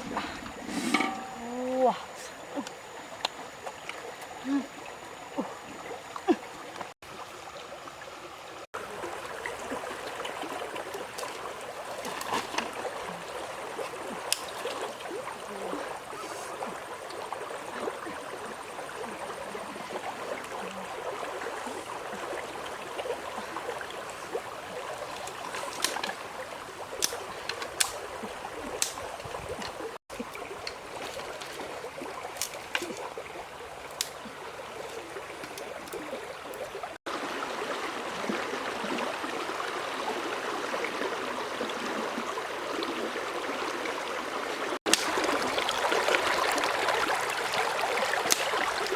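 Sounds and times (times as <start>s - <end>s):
stream water flowing: 0.0s - 48.9s.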